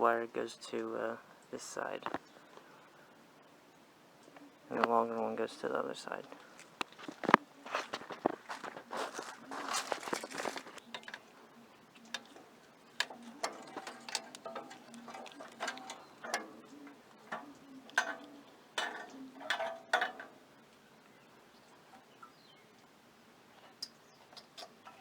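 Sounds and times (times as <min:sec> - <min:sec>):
light clicks and knocks: 0:12.0 - 0:20.4.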